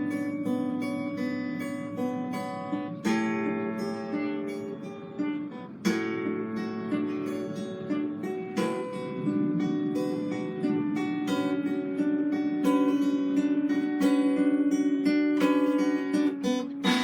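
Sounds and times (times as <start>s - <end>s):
guitar picked notes: 0.0s - 17.0s
strummed guitar chord: 0.0s - 17.0s.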